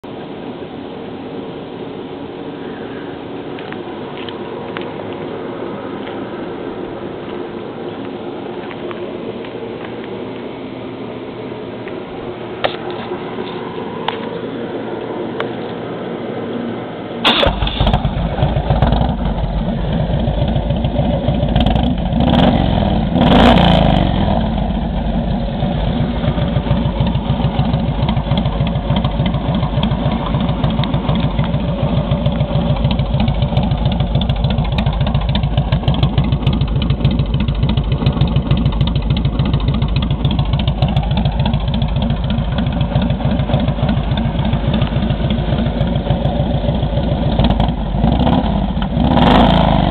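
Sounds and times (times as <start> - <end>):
motorcycle engine starting and idling: 17.2 - 49.9.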